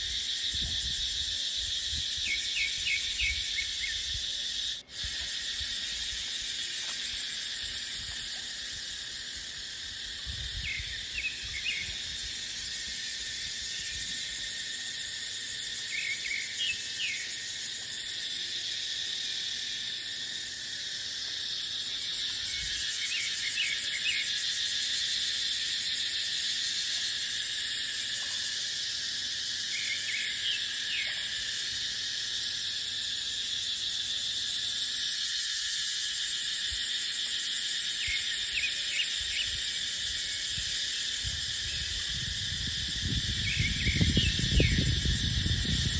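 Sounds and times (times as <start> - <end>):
cicadas droning: 0.0 - 45.9
wind rumble on microphone: 0.5 - 2.3, 10.2 - 12.4, 40.5 - 45.9.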